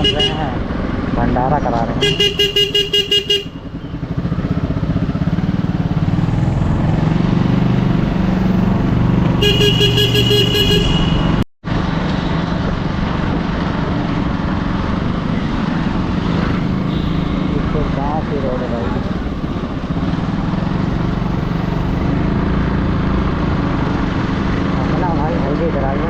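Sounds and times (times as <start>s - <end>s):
vehicle horn pulsing: 0.0s - 0.4s, 2.0s - 4.0s, 9.4s - 11.4s, 16.8s - 17.6s
motorcycle engine running: 2.0s - 11.4s, 12.6s - 25.3s.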